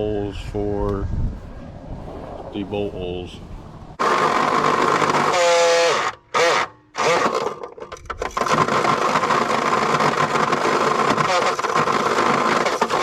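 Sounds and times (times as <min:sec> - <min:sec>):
power drill drilling steel: 0:04.0 - 0:13.0.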